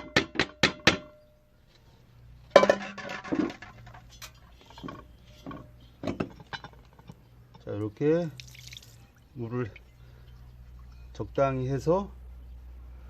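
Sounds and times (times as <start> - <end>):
metal pots clinking and clattering: 2.5 - 7.7.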